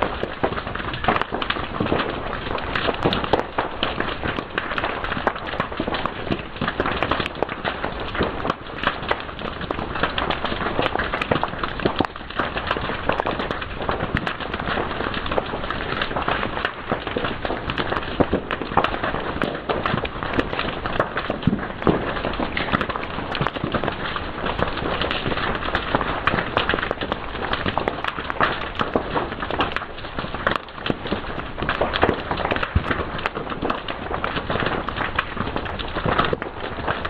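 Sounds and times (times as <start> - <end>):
fire crackling and popping: 0.0 - 37.0.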